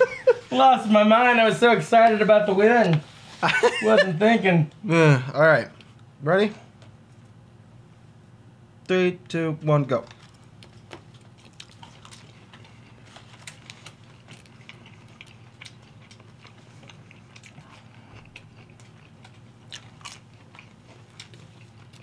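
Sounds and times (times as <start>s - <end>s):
people chewing: 10.0s - 22.0s.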